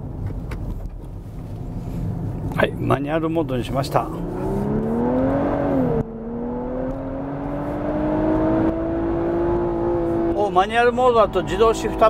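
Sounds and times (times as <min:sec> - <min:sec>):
car engine accelerating: 0:00.3 - 0:12.0.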